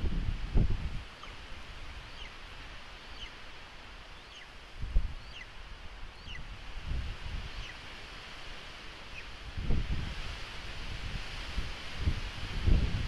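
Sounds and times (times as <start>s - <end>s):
wind rustling trees: 0.0s - 13.0s
thin high bird calls: 2.0s - 2.4s, 3.0s - 3.4s, 4.1s - 5.5s, 6.2s - 6.5s, 7.5s - 7.8s.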